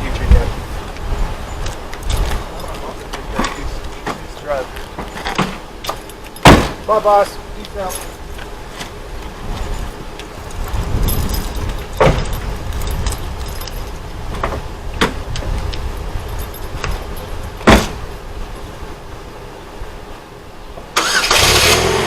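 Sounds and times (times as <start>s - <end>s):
keys jangling: 1.6s - 3.6s, 5.1s - 6.5s, 7.7s - 8.5s, 9.6s - 14.4s, 15.3s - 18.3s
car doors knocking: 6.4s - 6.8s, 17.6s - 18.0s.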